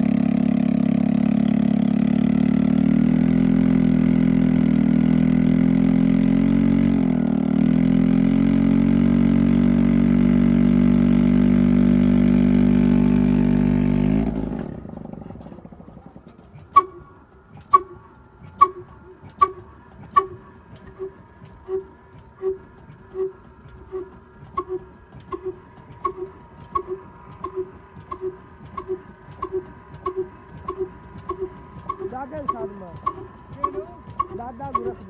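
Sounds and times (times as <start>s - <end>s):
engine running steadily: 0.0s - 35.0s
sharp metallic clanks: 24.5s - 35.0s.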